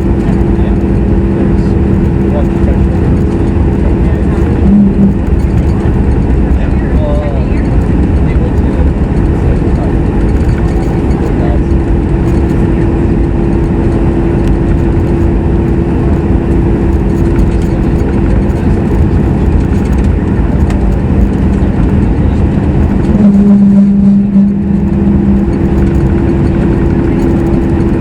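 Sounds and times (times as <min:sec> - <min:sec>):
jet engine and airflow roar: 0:00.0 - 0:28.0
low cabin hum: 0:00.0 - 0:28.0.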